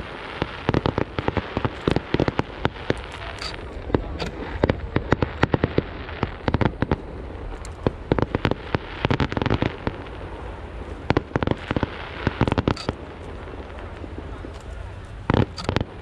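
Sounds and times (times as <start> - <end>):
fireworks cracks and bangs: 0.0 - 16.0.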